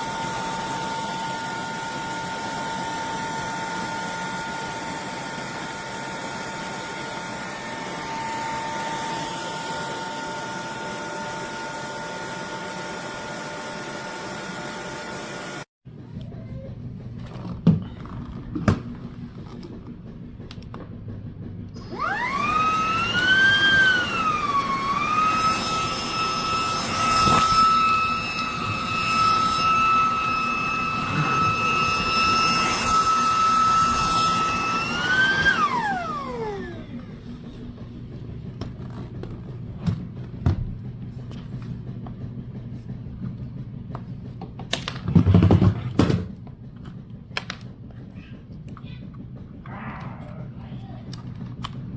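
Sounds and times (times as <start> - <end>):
vacuum motor whining: 0.0 - 15.7, 21.7 - 50.1.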